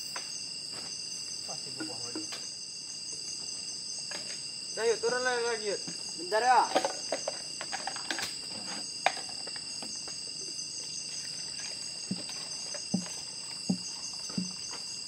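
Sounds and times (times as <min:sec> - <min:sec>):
insects chirping: 0:00.0 - 0:15.0
low knocks: 0:12.1 - 0:14.6.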